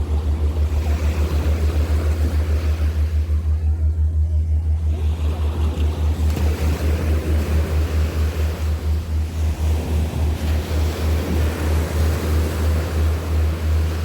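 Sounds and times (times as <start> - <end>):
low pulsing throb: 0.0 - 14.0
surf washing on beach: 4.9 - 14.0.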